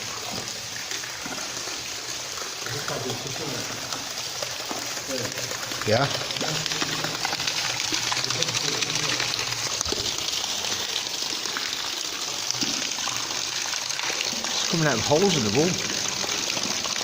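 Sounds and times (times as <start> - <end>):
water running and splashing: 0.0 - 17.0.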